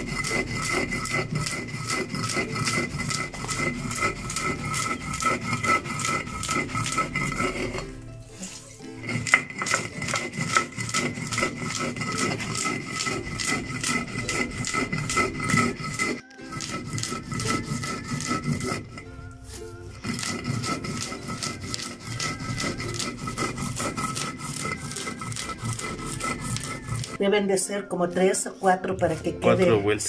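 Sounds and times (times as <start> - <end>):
stone grinding corn: 0.0 - 27.2.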